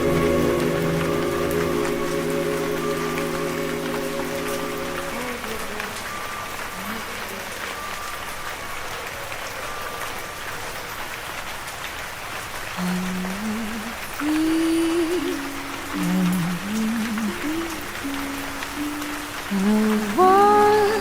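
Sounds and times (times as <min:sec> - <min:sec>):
wavering musical note: 0:00.0 - 0:07.0
steady rain falling: 0:00.0 - 0:21.0.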